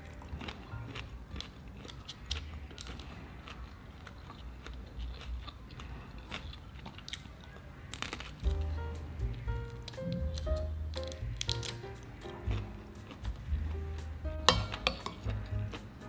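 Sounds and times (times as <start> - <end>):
person biting and chewing food: 0.1 - 8.6, 9.8 - 11.9
wet clicks and smacks: 9.3 - 12.0.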